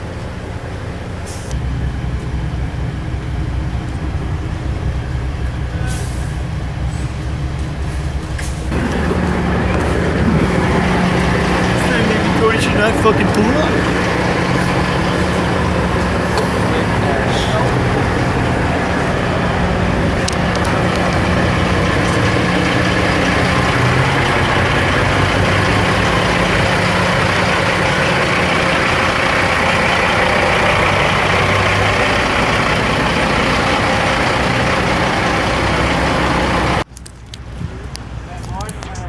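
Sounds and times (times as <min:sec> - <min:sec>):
diesel truck engines rumbling: 0:00.0 - 0:39.0.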